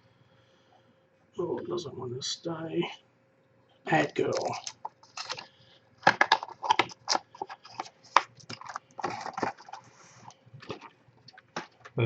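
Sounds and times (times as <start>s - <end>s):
card packs rustling: 3.9s - 12.0s
cards clicking and tapping: 4.2s - 9.8s.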